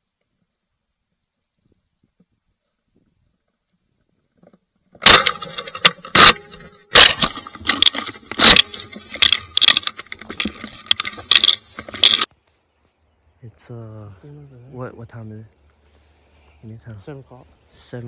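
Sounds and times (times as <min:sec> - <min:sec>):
rustling and crunching handling noise: 0:04.3 - 0:13.0.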